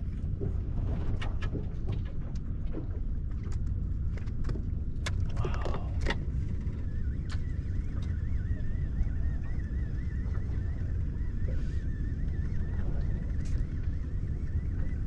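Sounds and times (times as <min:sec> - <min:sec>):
boat engine rumble: 0:00.0 - 0:15.0
faint wavering high tone: 0:05.4 - 0:15.0.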